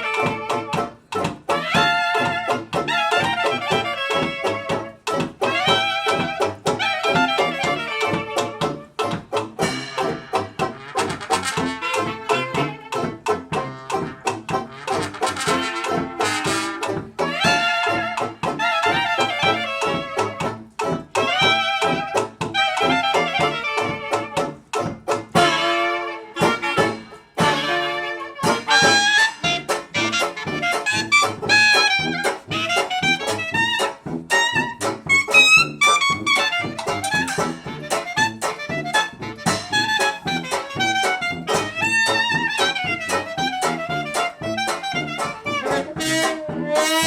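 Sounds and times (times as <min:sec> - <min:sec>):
swing jazz band playing: 0:00.0 - 0:47.0.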